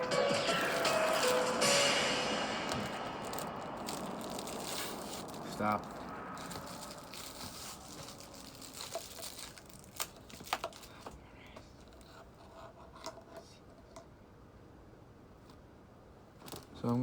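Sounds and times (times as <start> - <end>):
rustling and crinkling: 2.7 - 14.0.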